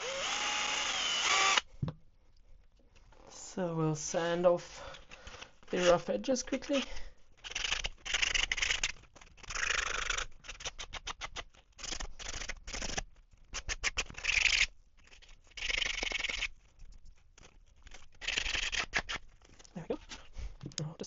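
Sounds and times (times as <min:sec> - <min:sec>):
hand sanding plastic: 0:05.6 - 0:20.8.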